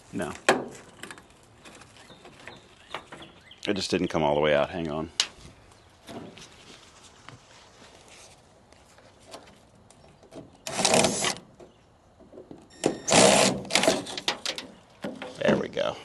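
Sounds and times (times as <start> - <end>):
cordless drill backing out screw: 12.8 - 14.4.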